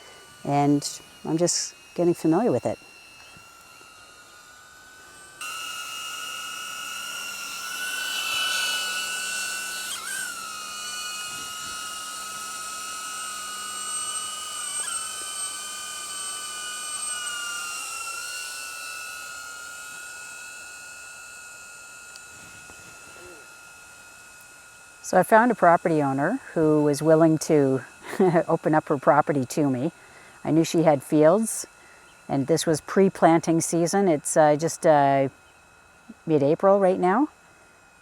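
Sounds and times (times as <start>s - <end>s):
drone propellers whining: 0.0s - 38.0s.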